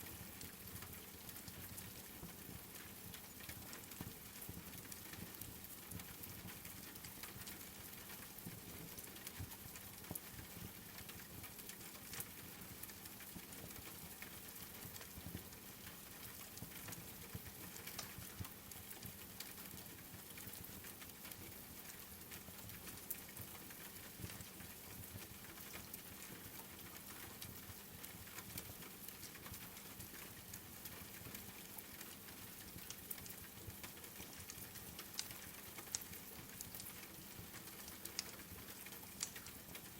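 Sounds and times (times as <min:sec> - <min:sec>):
raindrop ticks and pops: 0:00.0 - 0:39.9
rain falling: 0:15.8 - 0:39.9.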